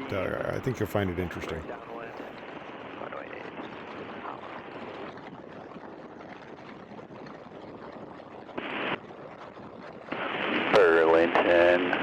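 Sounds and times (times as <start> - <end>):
biplane engine and wind rush: 0.0 - 12.0
radio static burst: 10.1 - 12.0.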